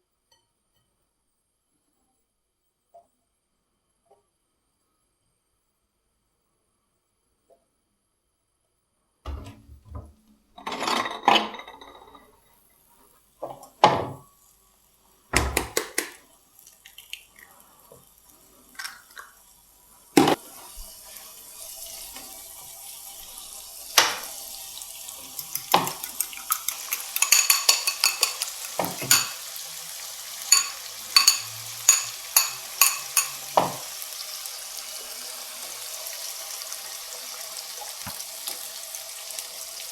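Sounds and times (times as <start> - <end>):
kitchen knocks and clatter: 9.3 - 12.4, 13.4 - 14.3, 15.4 - 16.2, 20.2 - 20.4, 23.9 - 24.4, 25.3 - 29.5, 30.5 - 33.9
food sizzling in a pan: 12.3 - 15.3, 16.0 - 39.9.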